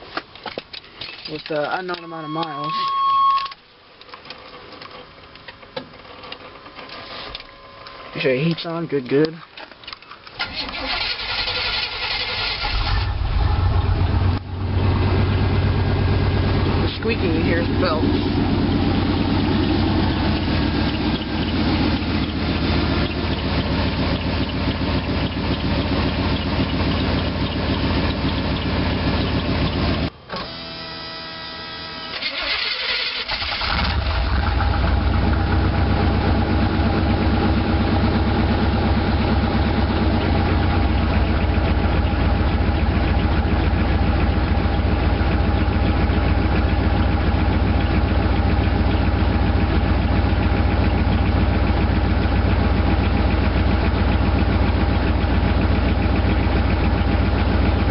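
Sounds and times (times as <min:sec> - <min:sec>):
truck engine idling: 0:10.3 - 0:30.3, 0:31.7 - 0:57.9
drive belt squeaking: 0:17.0 - 0:29.8.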